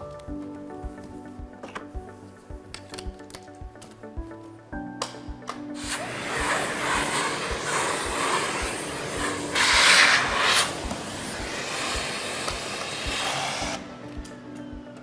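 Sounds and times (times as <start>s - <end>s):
music with steady beat: 0.0s - 15.0s
vacuum cleaner suction hiss: 5.8s - 13.9s.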